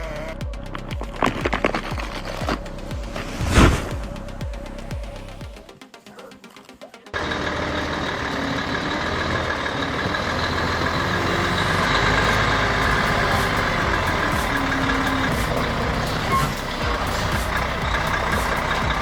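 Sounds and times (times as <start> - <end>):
truck diesel engine under load: 7.2 - 19.0.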